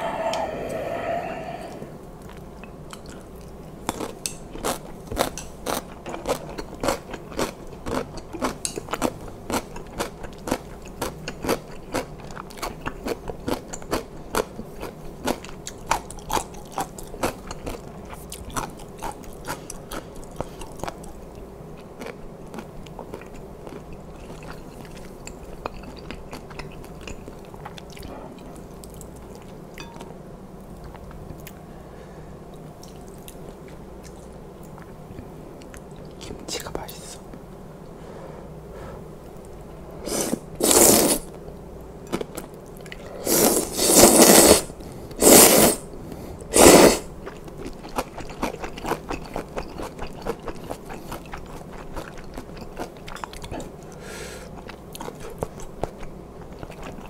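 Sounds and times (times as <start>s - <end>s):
crunchy chewing: 0.0s - 29.6s, 46.6s - 57.0s.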